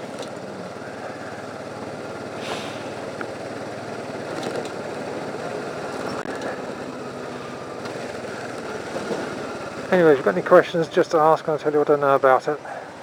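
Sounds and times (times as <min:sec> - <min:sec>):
motorcycle engine running: 0:00.0 - 0:13.0
brief hiss: 0:02.4 - 0:03.0.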